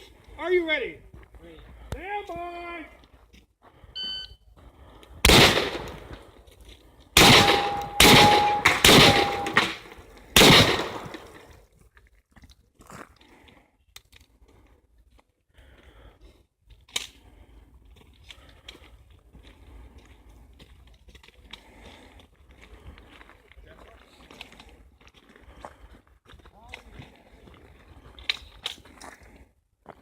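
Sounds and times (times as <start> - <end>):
shot timer beep: 4.0 - 4.4
shotgun shots: 5.2 - 6.2, 7.2 - 11.4
shell handling clicks and rustles: 5.4 - 11.4.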